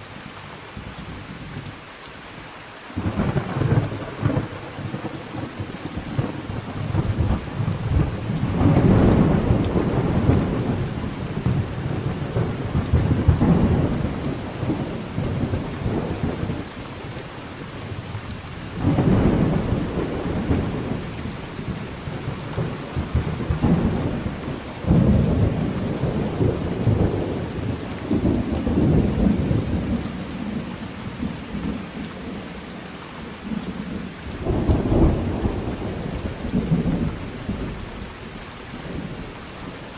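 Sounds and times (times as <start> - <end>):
steady rain: 0.0 - 39.9
rolling thunder: 3.0 - 16.8, 18.8 - 32.4.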